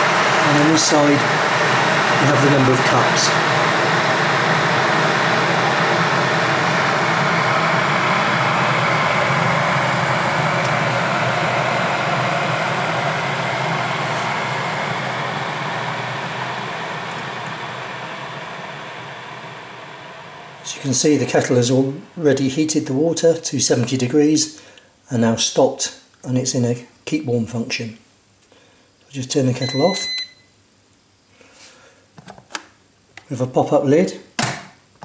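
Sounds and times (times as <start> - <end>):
electric kettle heating water: 0.0 - 23.2.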